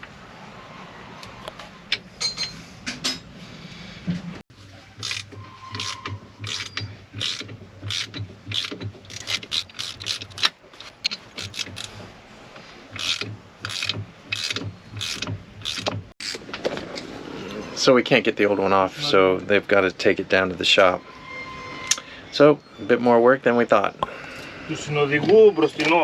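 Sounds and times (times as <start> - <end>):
hand tool rasping on metal: 5.0 - 11.9.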